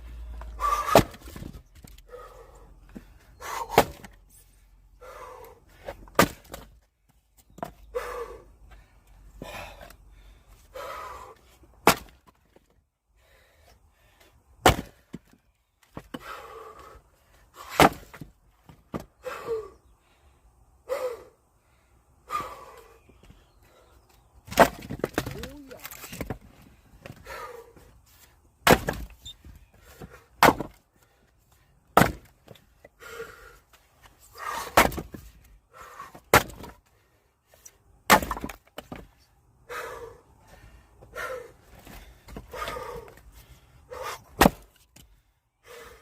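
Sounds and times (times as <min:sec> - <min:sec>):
axe chopping firewood: 0:00.6 - 0:01.6, 0:03.5 - 0:04.2, 0:05.9 - 0:06.8, 0:11.8 - 0:12.4, 0:14.6 - 0:15.3, 0:17.6 - 0:18.3, 0:24.5 - 0:26.4, 0:28.6 - 0:29.2, 0:29.9 - 0:30.8, 0:31.9 - 0:32.6, 0:34.4 - 0:35.3, 0:36.0 - 0:36.8, 0:38.0 - 0:39.1, 0:44.0 - 0:45.1.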